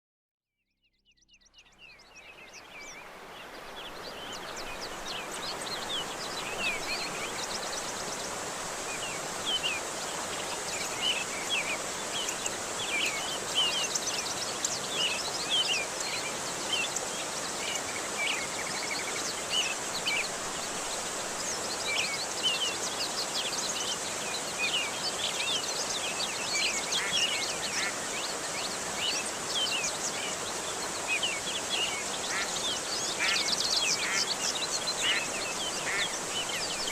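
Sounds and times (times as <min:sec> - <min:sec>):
birds chirping: 0:01.4 - 0:36.9
flowing water: 0:02.0 - 0:36.9.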